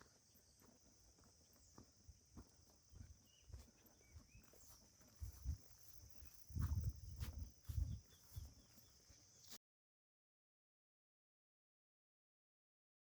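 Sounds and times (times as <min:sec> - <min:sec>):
high-pitched insect drone: 0:00.0 - 0:09.6.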